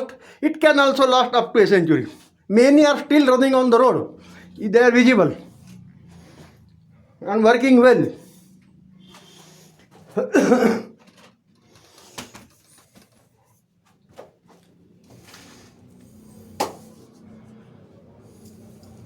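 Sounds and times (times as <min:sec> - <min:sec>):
man coughing: 0:10.1 - 0:11.0.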